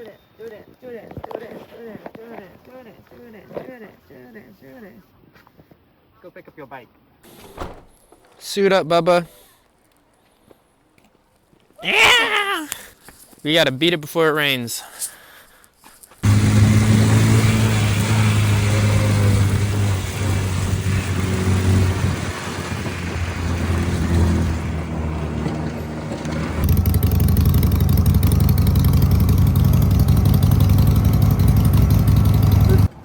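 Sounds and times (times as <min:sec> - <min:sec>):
motorcycle engine running: 0:16.2 - 0:32.9.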